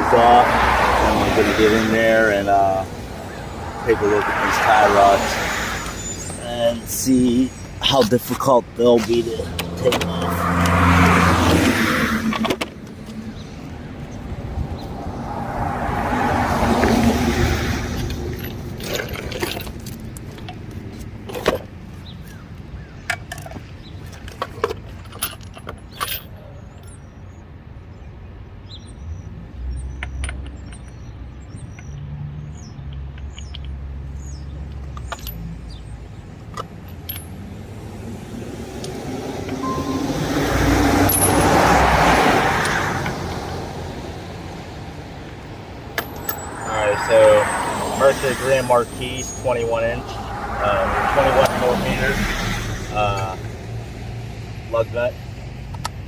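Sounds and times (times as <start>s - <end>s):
vehicle passing: 0.0s - 8.0s, 8.7s - 19.4s, 37.3s - 55.7s.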